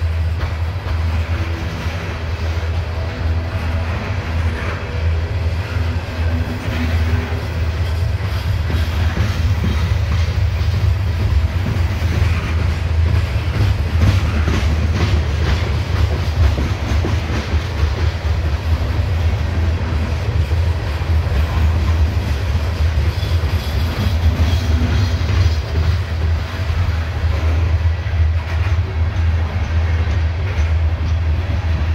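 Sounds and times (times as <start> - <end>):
freight train rumbling past: 0.0 - 31.9
wheels clacking over rails: 0.0 - 31.9.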